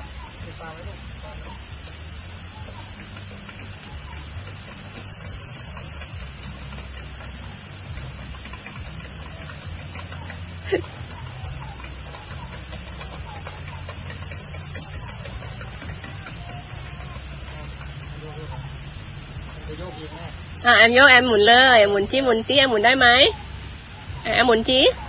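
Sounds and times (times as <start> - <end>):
high-pitched insect drone: 0.0 - 25.0.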